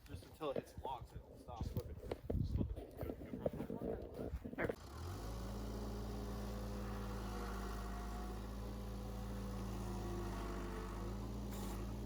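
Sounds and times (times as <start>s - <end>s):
diesel engine idling: 4.8s - 12.0s.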